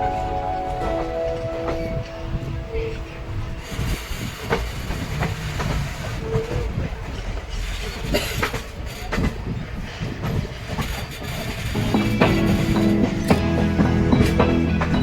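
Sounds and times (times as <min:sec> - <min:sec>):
train rumbling: 0:00.0 - 0:15.0
wheels clicking over rail joints: 0:03.7 - 0:15.0.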